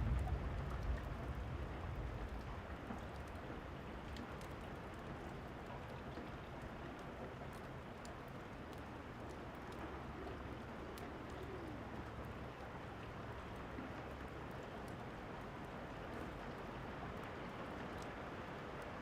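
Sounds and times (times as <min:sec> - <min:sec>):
low rumble: 0:00.0 - 0:02.7
wood fire crackles: 0:00.0 - 0:05.7
steady rain: 0:00.0 - 0:19.0.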